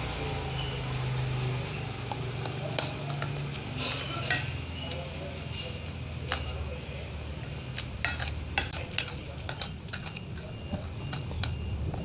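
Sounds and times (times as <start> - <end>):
cutlery scraping on a plate: 2.7 - 6.9, 7.6 - 11.6.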